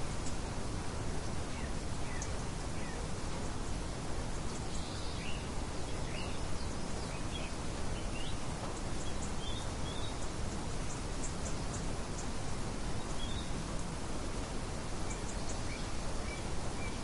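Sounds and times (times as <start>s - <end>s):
outdoor background hiss: 0.0s - 17.0s
birds chirping: 1.2s - 13.7s.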